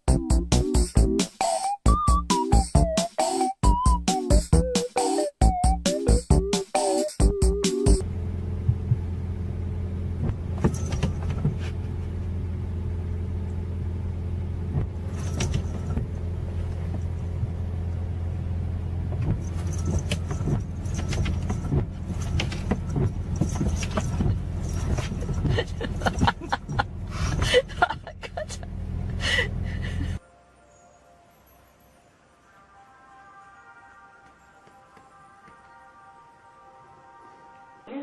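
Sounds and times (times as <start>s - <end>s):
car engine droning: 8.0s - 30.2s.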